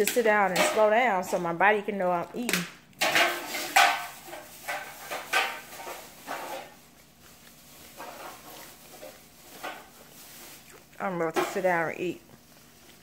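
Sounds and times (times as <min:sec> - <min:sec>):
person chewing fried food: 0:06.8 - 0:09.6, 0:10.3 - 0:11.0, 0:12.2 - 0:13.0.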